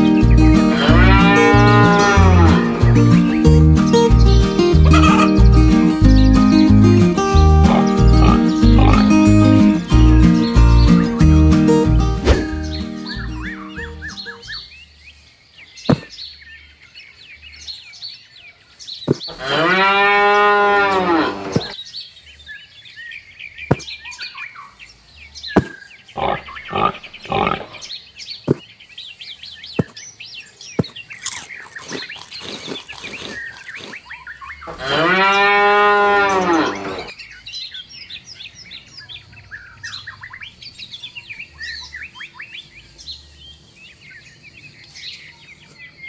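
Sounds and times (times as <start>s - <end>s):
small birds chirping: 0.0s - 46.0s
cow mooing: 0.6s - 3.0s, 7.6s - 9.3s, 19.3s - 21.8s, 26.2s - 27.9s, 34.7s - 37.1s.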